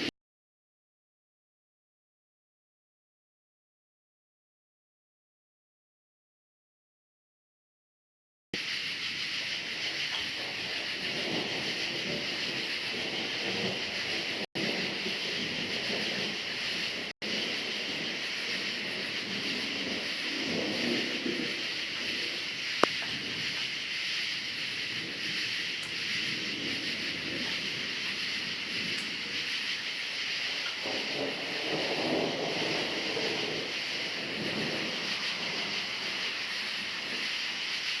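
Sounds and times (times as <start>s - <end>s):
crickets chirping: 8.6s - 38.0s
rain: 8.6s - 38.0s
rolling thunder rumble: 8.6s - 38.0s.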